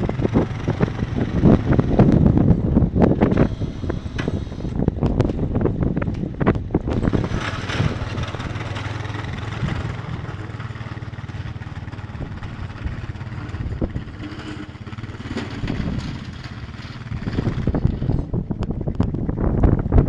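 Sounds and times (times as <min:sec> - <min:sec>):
low rumble and rushing noise: 0:00.0 - 0:20.0
wind buffeting microphone: 0:00.0 - 0:20.0.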